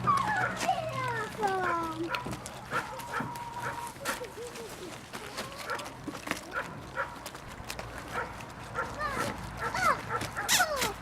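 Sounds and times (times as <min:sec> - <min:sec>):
puppies high yelps: 0:00.0 - 0:04.1, 0:08.1 - 0:11.0
puppies yipping and whimpering: 0:00.0 - 0:04.2.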